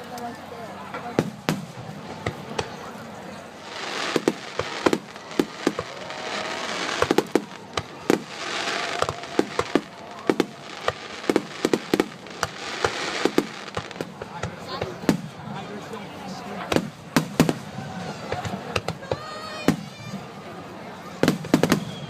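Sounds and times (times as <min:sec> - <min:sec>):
fireworks bangs: 0:01.1 - 0:02.9, 0:03.6 - 0:15.5, 0:16.7 - 0:20.2, 0:21.1 - 0:22.0
fireworks hiss: 0:03.6 - 0:14.3.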